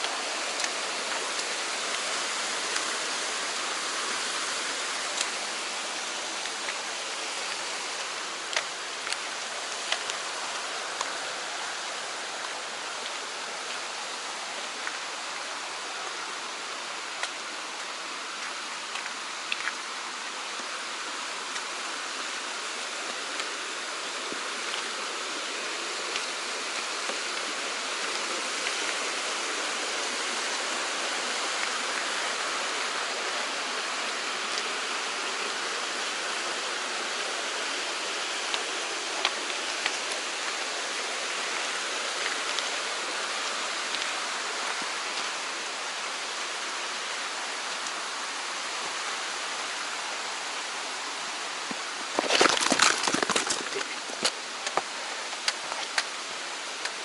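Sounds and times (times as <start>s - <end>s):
stream rushing: 0.0s - 57.0s
faint light ticks: 43.9s - 44.1s.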